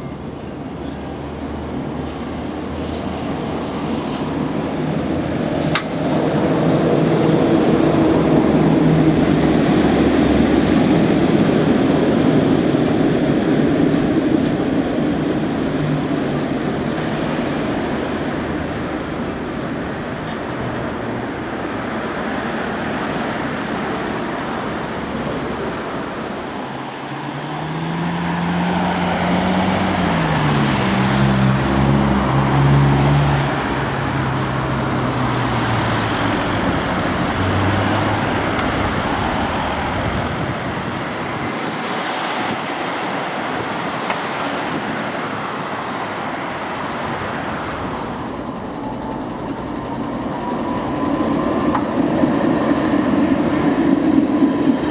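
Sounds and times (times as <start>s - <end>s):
street traffic: 0.0s - 54.9s
vehicle engine accelerating: 26.7s - 40.8s.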